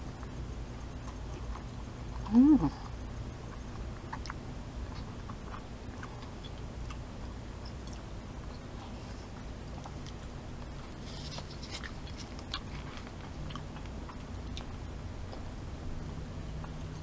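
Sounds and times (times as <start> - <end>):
chewing noodles: 1.0 - 7.0, 7.6 - 15.5
person humming: 2.2 - 2.9.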